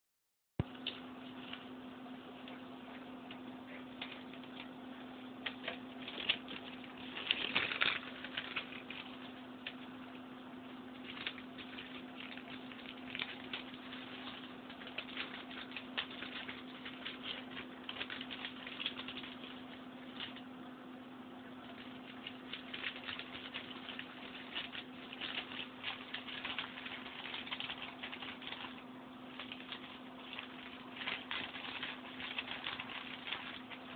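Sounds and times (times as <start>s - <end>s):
newspaper crinkling and tearing: 5.4s - 9.9s, 10.9s - 20.5s, 21.6s - 33.9s.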